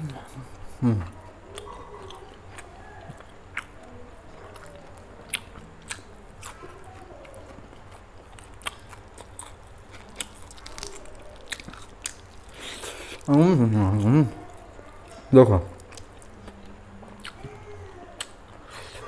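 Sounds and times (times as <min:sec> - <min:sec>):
wet chewing: 0:00.9 - 0:19.0.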